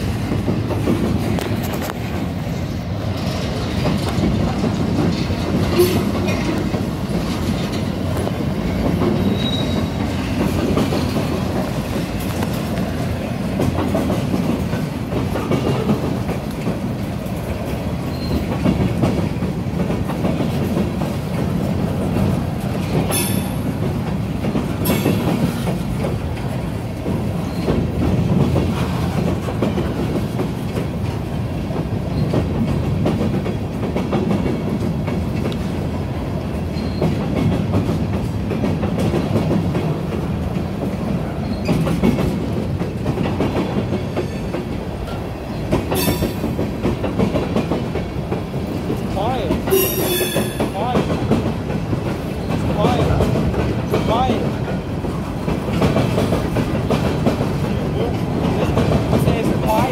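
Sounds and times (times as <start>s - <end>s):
clicking over rail joints: 0.0s - 59.9s
freight train wheels rumbling: 0.0s - 59.9s.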